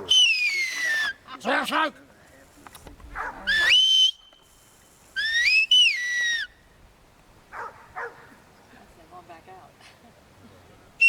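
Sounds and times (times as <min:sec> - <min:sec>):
herding whistle: 0:00.0 - 0:01.2, 0:03.5 - 0:04.5, 0:05.2 - 0:06.5.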